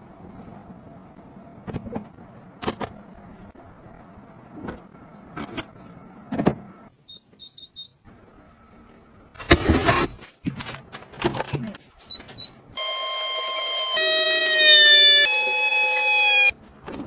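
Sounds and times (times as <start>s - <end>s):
high electronic beeps: 12.8s - 16.5s.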